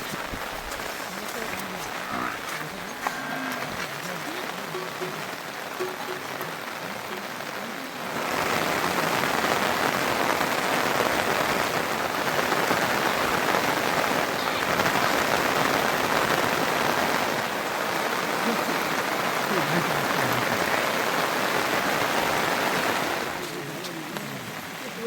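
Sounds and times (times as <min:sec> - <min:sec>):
heavy rain hiss: 0:00.0 - 0:25.0.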